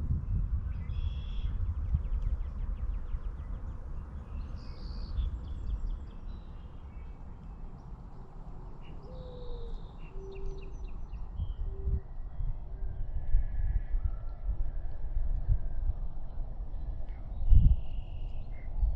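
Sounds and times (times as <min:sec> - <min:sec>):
low rumble: 0:00.0 - 0:07.8, 0:11.2 - 0:18.9
small birds chirping: 0:00.3 - 0:11.7.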